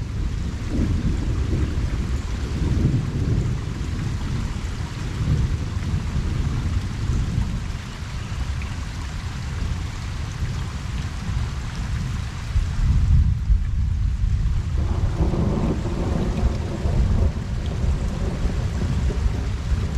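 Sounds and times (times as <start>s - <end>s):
distant thunder rumble: 0.0s - 7.7s, 14.6s - 19.9s
rain falling on a pond: 0.0s - 19.9s.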